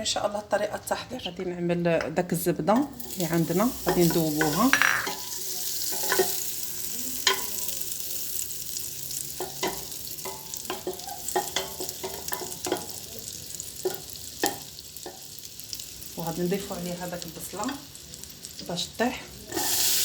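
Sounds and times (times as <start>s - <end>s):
butter sizzling in a pot: 2.7s - 20.0s
spoon stirring and knocking pot: 2.8s - 6.5s, 7.2s - 7.6s, 9.3s - 13.1s, 13.8s - 15.3s.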